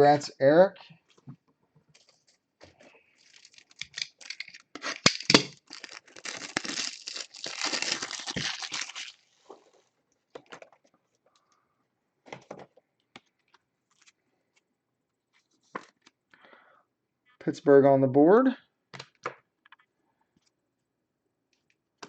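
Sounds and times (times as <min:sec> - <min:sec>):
plastic card sleeve crinkling: 0:02.8 - 0:09.6.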